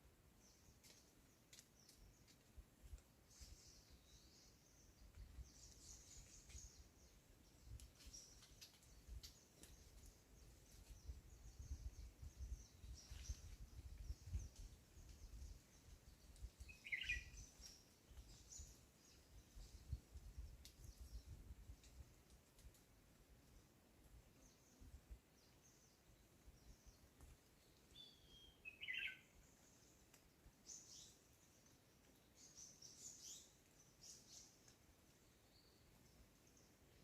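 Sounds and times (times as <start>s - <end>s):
faint clicks: 0.8s - 3.1s, 20.5s - 21.0s, 21.7s - 22.9s, 30.0s - 30.4s, 34.6s - 35.2s.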